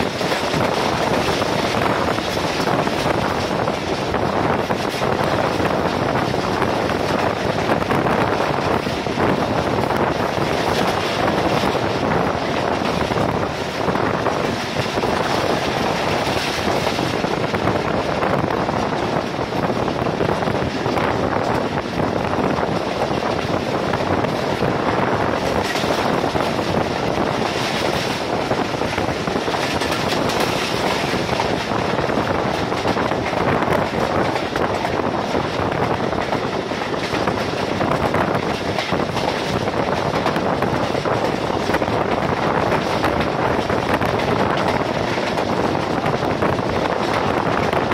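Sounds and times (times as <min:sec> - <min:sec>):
train wheels rumbling on rails: 0:00.0 - 0:47.9
wind buffeting microphone: 0:00.0 - 0:47.9.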